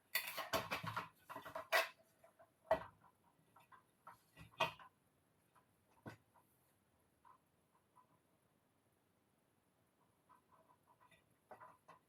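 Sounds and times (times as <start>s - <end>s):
metal parts clicking and knocking: 0.1s - 2.0s.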